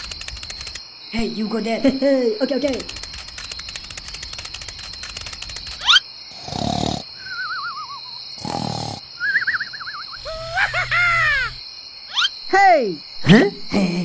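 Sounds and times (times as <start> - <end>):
high cricket chirr: 0.0 - 14.0
quick rising and falling chirps: 2.9 - 6.0, 7.2 - 8.2, 9.2 - 11.5
cartoon snoring with whistle: 6.3 - 10.6.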